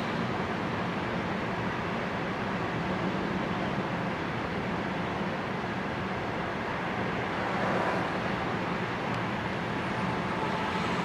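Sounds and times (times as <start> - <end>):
freight train wheels rumbling on rail: 0.0 - 11.0.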